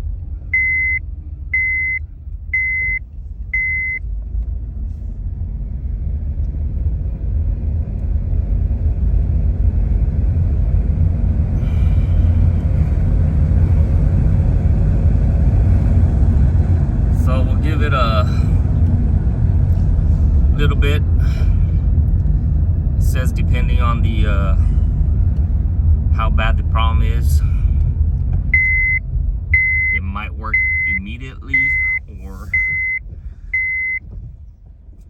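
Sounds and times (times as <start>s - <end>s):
car engine and road rumble: 0.0s - 35.0s
short electronic beep: 0.6s - 1.0s, 1.6s - 2.0s, 2.6s - 3.0s, 3.6s - 4.0s, 28.6s - 29.0s, 29.6s - 33.0s, 33.6s - 34.0s.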